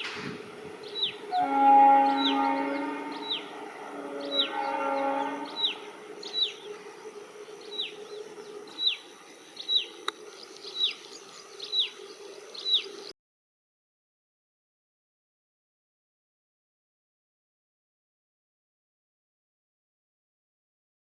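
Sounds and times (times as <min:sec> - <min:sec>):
train horn blast: 0:01.1 - 0:06.3.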